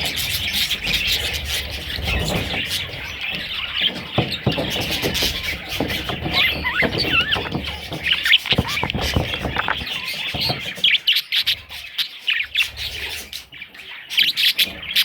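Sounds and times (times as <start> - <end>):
budgerigars chirping and chattering: 0.0 - 15.0
low knocks: 2.4 - 10.8.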